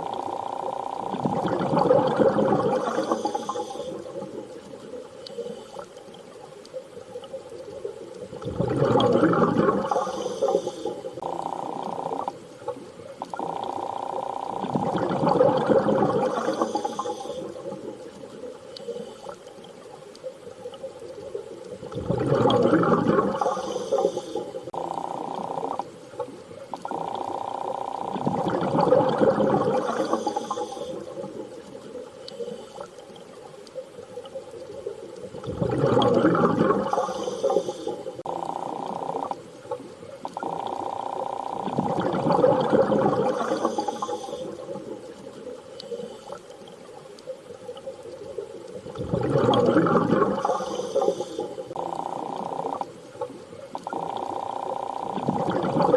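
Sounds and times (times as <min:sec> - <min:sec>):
underwater rushing bubbling surge: 0:01.0 - 0:04.9, 0:08.3 - 0:13.9, 0:14.5 - 0:18.5, 0:21.1 - 0:27.4, 0:28.0 - 0:32.0, 0:34.6 - 0:40.9, 0:41.5 - 0:45.6, 0:47.7 - 0:55.9.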